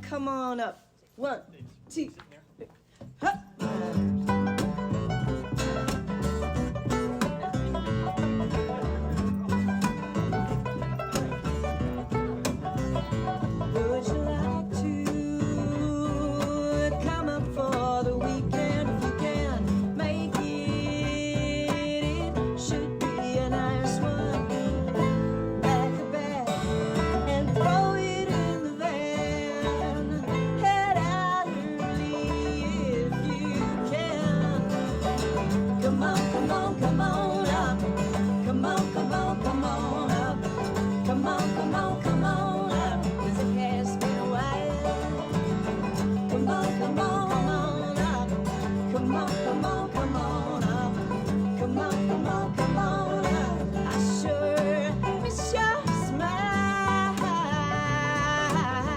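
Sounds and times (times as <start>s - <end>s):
acoustic band playing country music: 3.2s - 58.9s
person singing: 13.4s - 58.9s.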